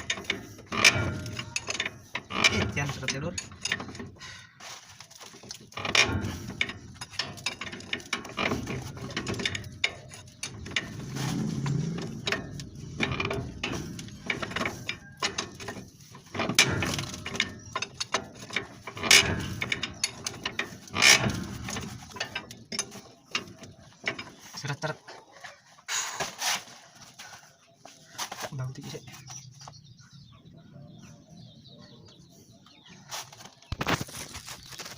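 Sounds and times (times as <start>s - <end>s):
sharp metal knocks: 0.0s - 4.2s, 5.8s - 24.4s
metal parts clicking and rattling: 0.0s - 25.0s.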